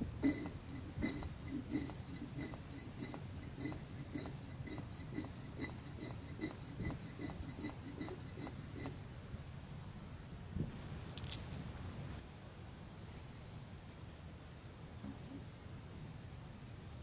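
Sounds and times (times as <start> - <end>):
pump pulsing hum: 0.0 - 9.5.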